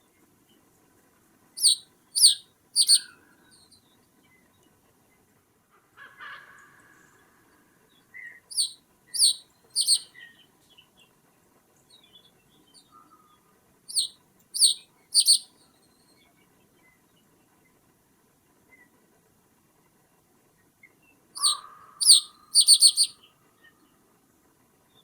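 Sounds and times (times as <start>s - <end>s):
bird sharp high downward notes: 1.6s - 3.1s, 8.5s - 10.1s, 13.9s - 15.5s, 21.4s - 23.1s
bird rasping call: 1.6s - 3.2s, 8.5s - 10.1s, 13.9s - 15.5s, 21.4s - 23.1s
faint bird chirps: 1.6s - 4.5s, 8.2s - 10.5s, 12.0s - 17.0s, 21.4s - 23.9s.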